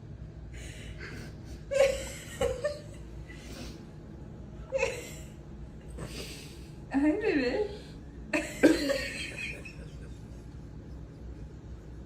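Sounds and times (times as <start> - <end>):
steady low hum: 0.0 - 12.0
person laughing softly: 8.4 - 11.1.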